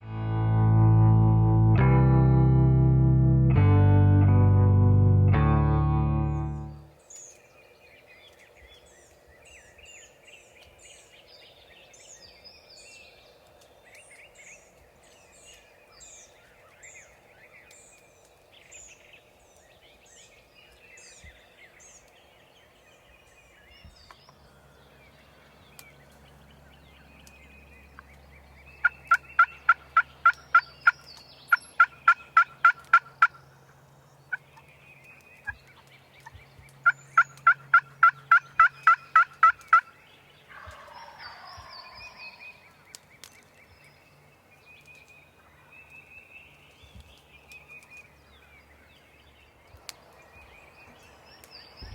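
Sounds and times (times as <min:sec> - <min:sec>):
low steady hum: 0:00.0 - 0:06.9
faint songbirds singing: 0:06.3 - 0:51.9
rapid turkey calls: 0:28.8 - 0:33.7, 0:35.4 - 0:42.6.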